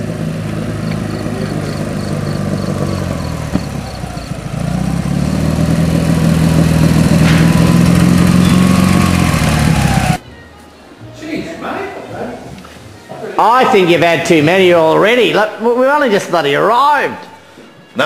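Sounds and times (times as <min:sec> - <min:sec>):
motorcycle engines idling: 0:00.0 - 0:10.2
motorcycle pulling up: 0:00.0 - 0:10.2.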